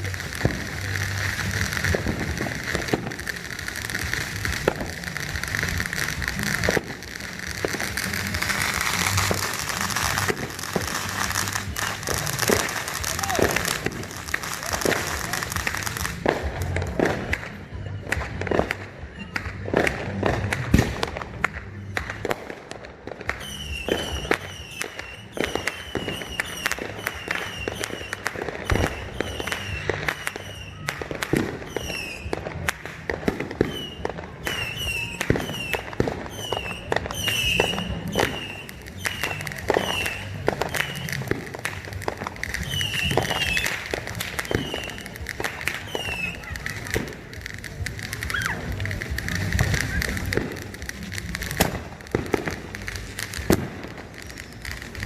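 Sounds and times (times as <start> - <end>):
fireworks exploding: 0.0 - 55.0.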